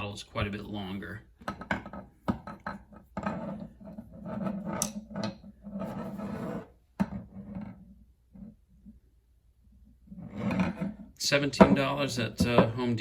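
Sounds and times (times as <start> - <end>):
screwdrivers knocking and rubbing: 1.4 - 7.8, 10.1 - 12.9.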